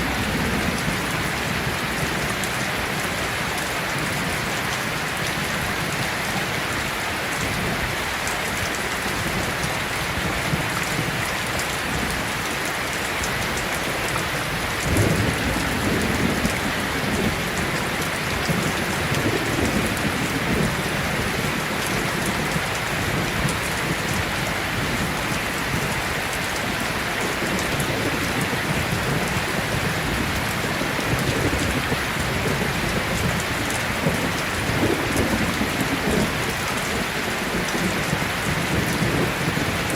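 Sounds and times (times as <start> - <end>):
heavy rain pouring: 0.0 - 39.9
distant thunder rumbles: 14.4 - 26.0.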